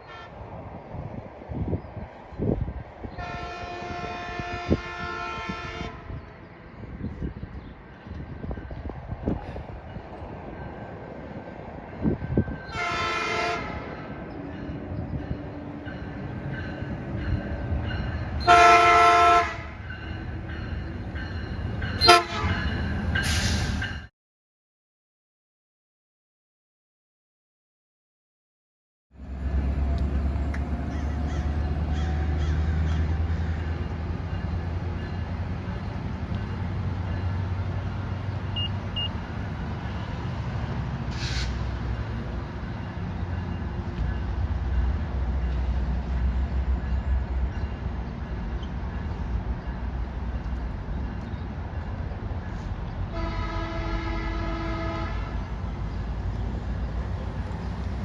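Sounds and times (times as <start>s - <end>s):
train horn: 0.0s - 0.5s, 3.1s - 6.3s, 12.7s - 14.3s, 17.2s - 20.7s, 21.9s - 23.8s, 53.0s - 55.6s
train rumbling: 0.1s - 24.1s, 29.2s - 58.0s.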